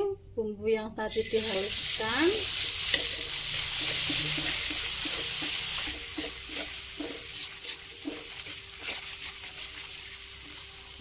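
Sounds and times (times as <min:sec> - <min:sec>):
paste sizzling in hot oil: 0:01.2 - 0:11.0
metal spoon scraping a wok: 0:02.5 - 0:10.2.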